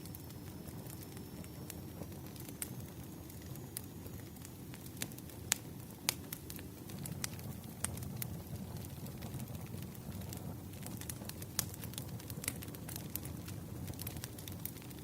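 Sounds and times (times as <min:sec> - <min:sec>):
firewood crackling and popping: 0:00.0 - 0:15.0
low rumble of flames: 0:00.0 - 0:15.0.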